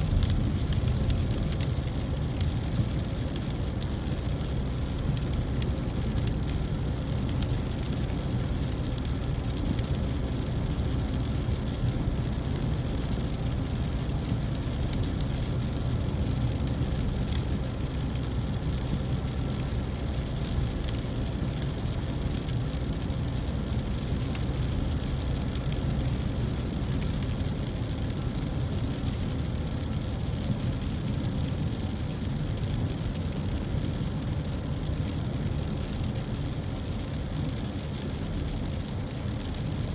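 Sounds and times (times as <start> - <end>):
car driving on wet road: 0.0 - 39.9.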